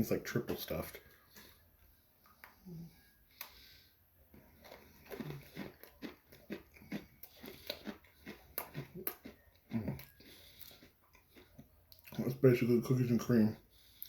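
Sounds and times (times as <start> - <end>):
cookie crunching: 4.3 - 12.4.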